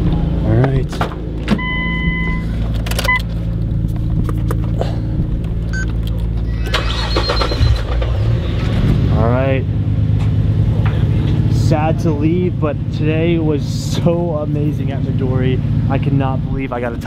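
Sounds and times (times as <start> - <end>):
car engine idling: 0.0 - 17.0
short electronic beep: 1.6 - 3.2.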